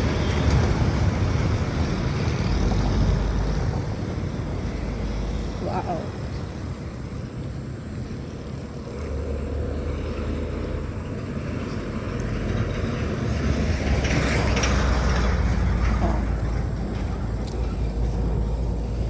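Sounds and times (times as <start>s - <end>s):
road traffic rumble: 0.0s - 19.0s
vehicle passing close: 0.0s - 19.0s.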